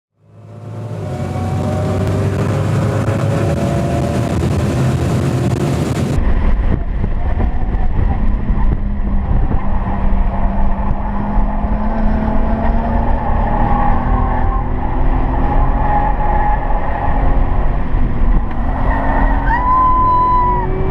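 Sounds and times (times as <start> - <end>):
car engine running hard: 0.2 - 20.9.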